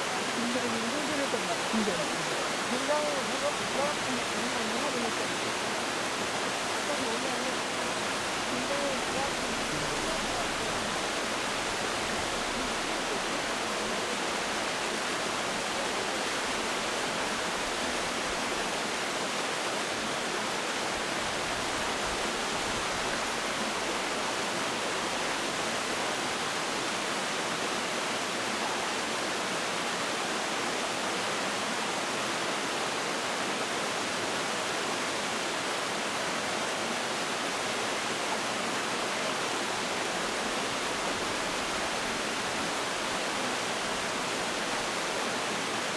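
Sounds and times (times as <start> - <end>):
stream rushing: 0.0 - 45.9.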